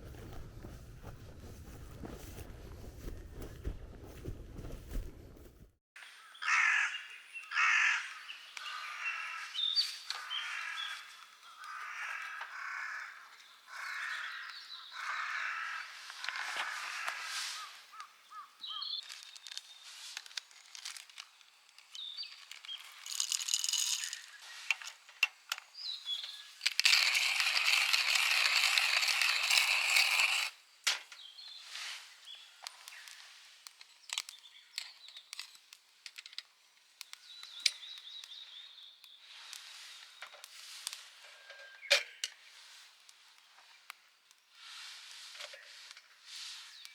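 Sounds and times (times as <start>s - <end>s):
small birds chirping: 6.0s - 23.2s, 24.0s - 26.8s, 31.2s - 35.8s, 36.5s - 40.4s, 45.6s - 46.9s.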